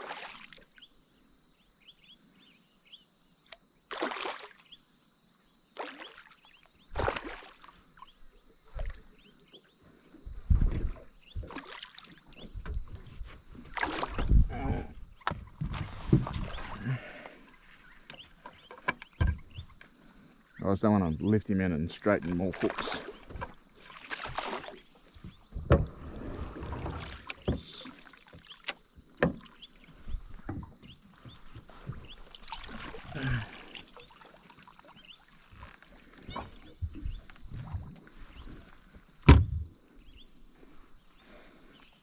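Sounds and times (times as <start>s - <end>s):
fish splashing against boat: 5.8s - 7.8s, 10.6s - 14.5s, 15.2s - 17.5s, 22.3s - 37.9s.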